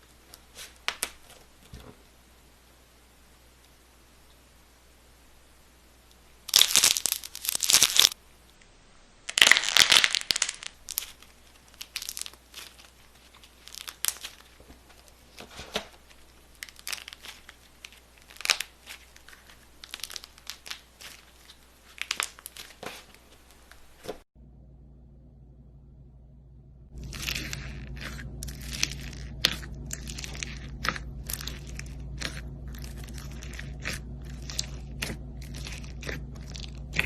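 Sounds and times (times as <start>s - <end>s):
crunchy slime crackling: 6.4s - 8.2s, 9.3s - 15.4s, 16.0s - 24.2s, 26.9s - 37.0s.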